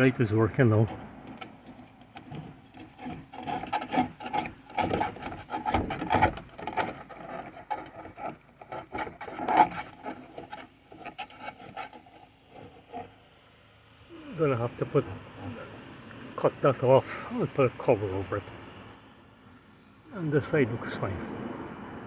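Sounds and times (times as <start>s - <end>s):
skylight hinges scraping and clicking: 0.0s - 13.2s.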